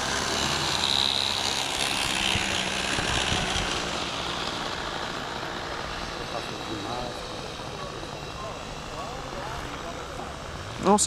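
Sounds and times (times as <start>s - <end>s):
wind noise hiss: 0.0s - 6.2s
model airplane motor whine: 0.0s - 11.0s.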